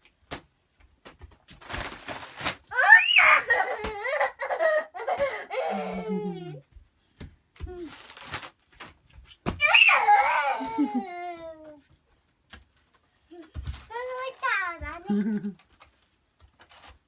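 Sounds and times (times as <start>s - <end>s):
small child laughing: 2.8s - 6.6s, 9.7s - 11.8s, 15.0s - 15.6s.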